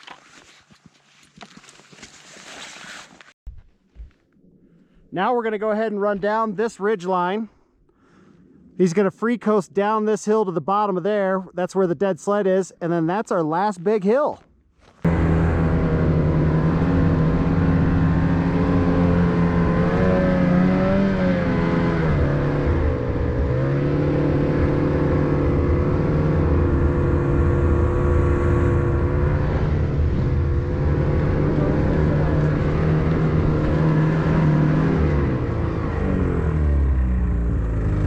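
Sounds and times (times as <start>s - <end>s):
snowmobile engine running: 15.0s - 38.0s.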